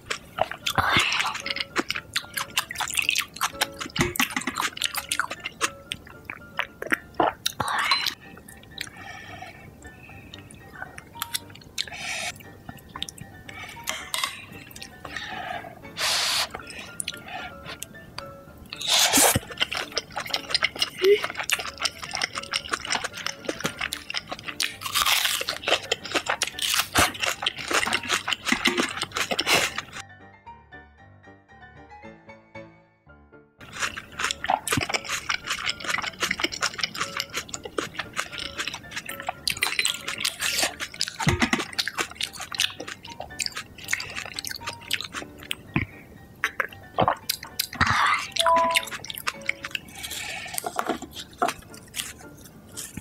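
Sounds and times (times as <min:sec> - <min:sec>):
wet chewing: 0:00.0 - 0:30.0, 0:33.6 - 0:53.0
mouth clicks and smacks: 0:34.3 - 0:49.8.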